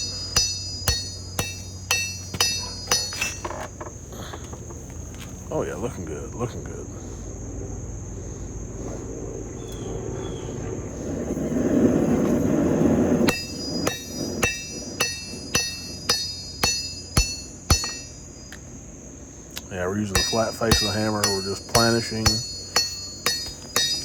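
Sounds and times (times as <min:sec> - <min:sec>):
hammer ringing on anvil: 0:00.0 - 0:03.6, 0:13.3 - 0:18.6, 0:20.0 - 0:24.0.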